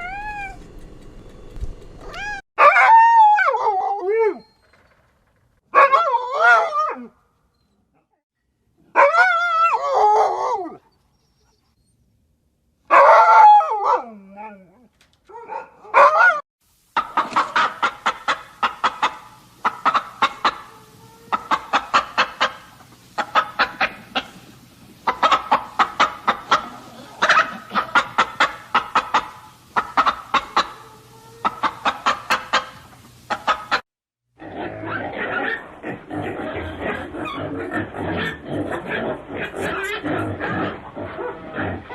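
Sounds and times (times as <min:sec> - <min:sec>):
animal sound: 0:17.0 - 0:33.8, 0:34.4 - 0:41.9
chickens clucking: 0:17.0 - 0:33.8.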